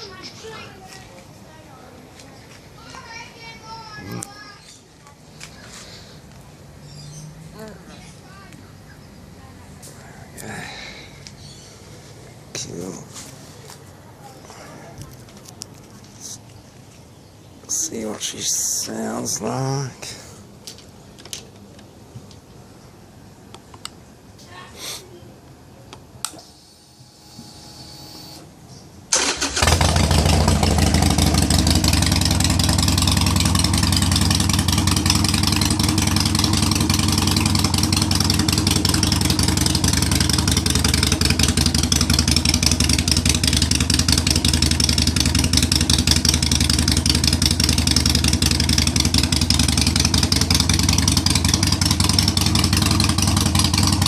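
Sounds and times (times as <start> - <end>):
motorcycle engine starting and idling: 29.1 - 54.0.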